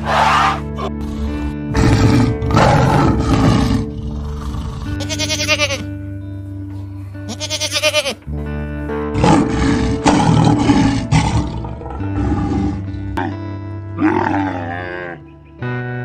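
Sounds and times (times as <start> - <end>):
lion roaring: 0.0 - 5.0, 9.2 - 13.4, 14.0 - 15.2
background music: 0.0 - 16.0
goat bleating: 4.8 - 6.0, 7.2 - 8.3.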